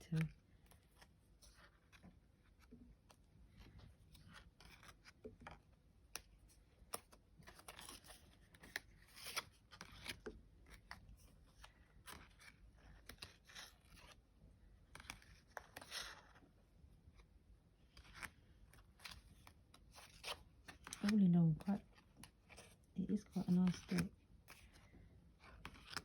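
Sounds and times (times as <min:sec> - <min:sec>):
card stock clicking and rubbing: 0:17.8 - 0:26.0
cards scraping: 0:23.4 - 0:26.0.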